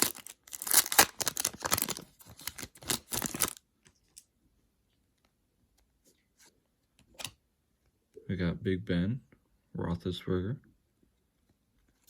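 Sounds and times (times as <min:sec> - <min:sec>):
card wrapper rustling and tearing: 0:00.0 - 0:04.2.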